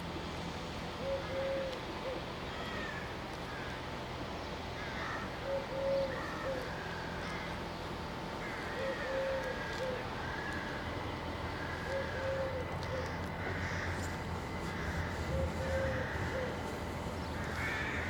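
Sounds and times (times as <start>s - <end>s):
dove cooing: 8.8s - 10.0s, 11.8s - 13.8s, 14.7s - 18.0s
steady low hum: 9.5s - 18.0s.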